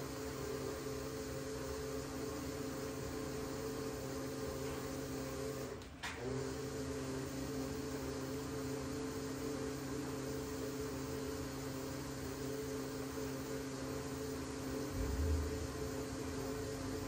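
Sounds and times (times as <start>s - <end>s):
coating machine humming and hissing: 0.0s - 17.0s
low thump: 14.9s - 15.7s.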